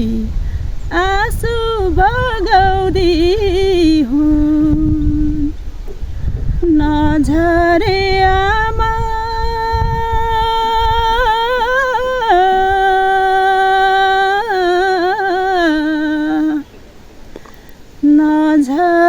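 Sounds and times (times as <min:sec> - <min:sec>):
woman singing unaccompanied: 0:00.0 - 0:16.9, 0:17.8 - 0:19.0.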